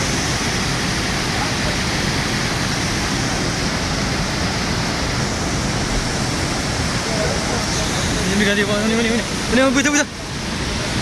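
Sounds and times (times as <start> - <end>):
river floodwater rushing: 0.0 - 11.0.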